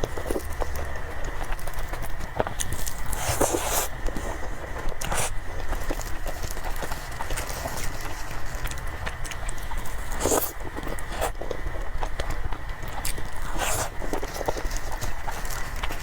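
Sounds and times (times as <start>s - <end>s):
person chewing cake: 0.0s - 16.0s
steady low hum: 0.0s - 16.0s.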